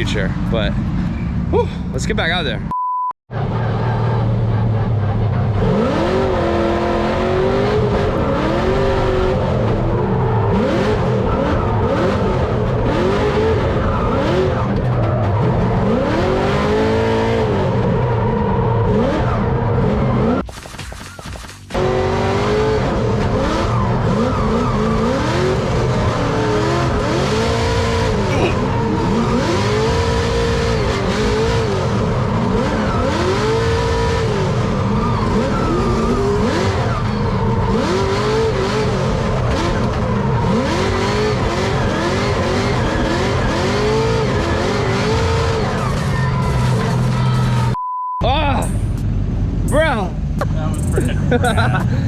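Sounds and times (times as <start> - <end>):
car engine revving: 3.3 - 20.4, 21.5 - 47.8.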